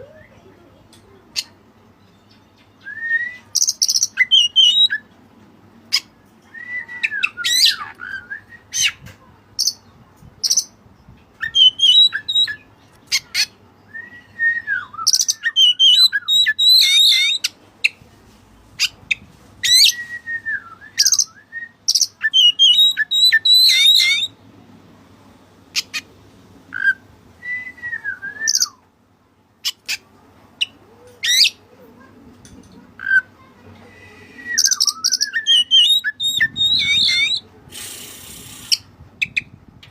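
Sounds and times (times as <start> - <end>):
bird singing whistled phrases: 2.8 - 5.1, 6.5 - 9.0, 11.4 - 12.6, 13.9 - 17.5, 19.6 - 24.3, 26.8 - 28.8, 33.9 - 37.4.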